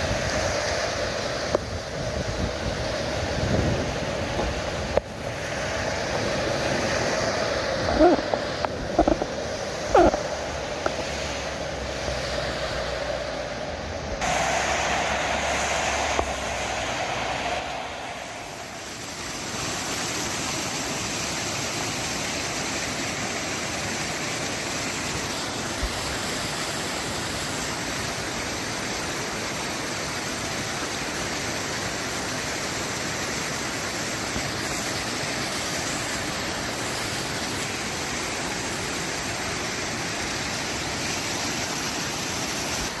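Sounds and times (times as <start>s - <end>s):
rain falling steadily: 0.0s - 43.0s
low hum: 7.8s - 19.9s.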